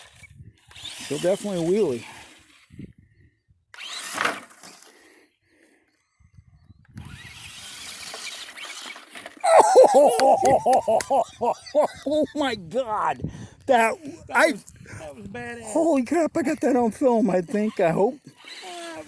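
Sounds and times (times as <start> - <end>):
excited vocal cries: 9.4 - 14.5.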